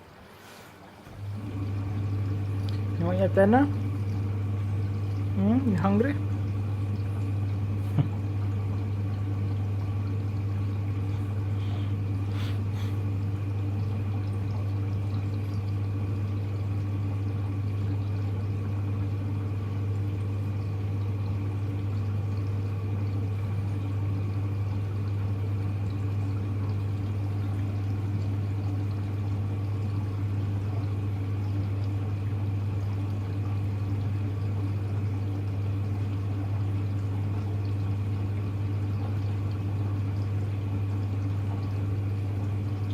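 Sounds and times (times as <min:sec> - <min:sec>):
low machine hum: 0:00.0 - 0:42.9
water rushing into washing machine: 0:00.0 - 0:42.9.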